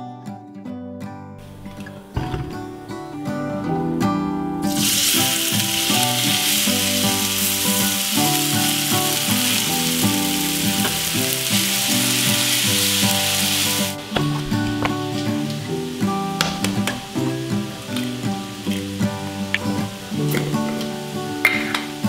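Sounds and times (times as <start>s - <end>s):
acoustic guitar music: 0.0s - 22.0s
potatoes sizzling in a skillet: 4.7s - 22.0s.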